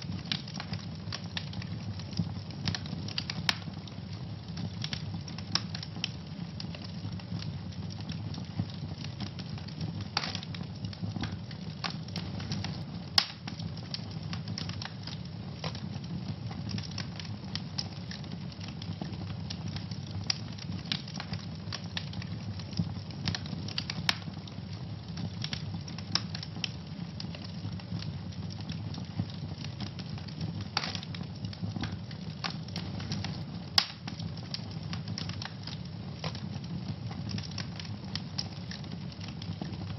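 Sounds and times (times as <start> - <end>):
fire crackling: 0.0 - 39.9
low rumble of flames: 0.0 - 39.9
loud pops of fire: 8.6 - 24.5, 27.4 - 39.9.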